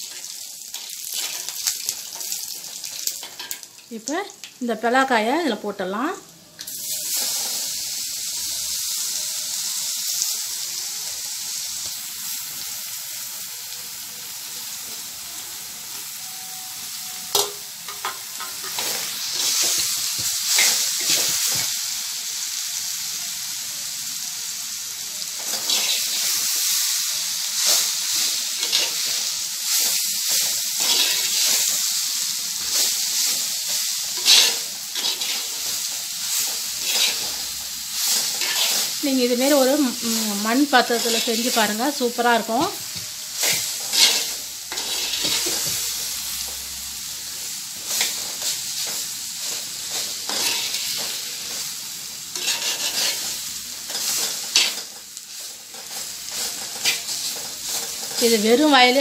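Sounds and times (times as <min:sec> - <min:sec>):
food sizzling in hot oil: 0:00.0 - 0:59.0
metal spoon scraping pot: 0:52.3 - 0:53.3.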